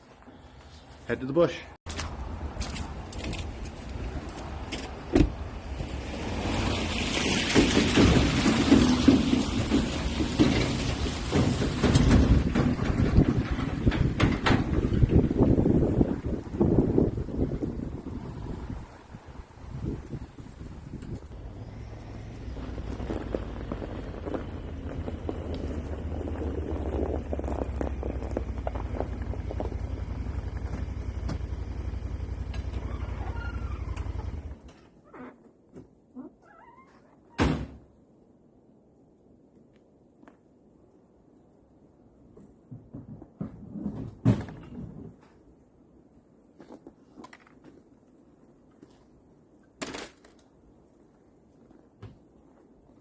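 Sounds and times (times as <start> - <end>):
knocks and rattles: 7.2 - 17.5
engine running: 21.3 - 34.8.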